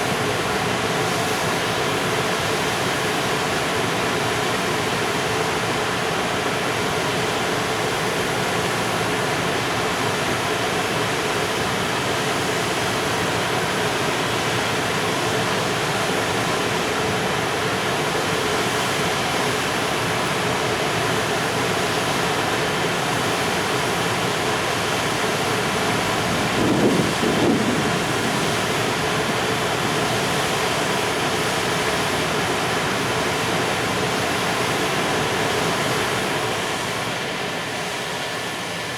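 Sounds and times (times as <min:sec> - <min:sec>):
freight train wheels rushing: 0:25.6 - 0:30.3.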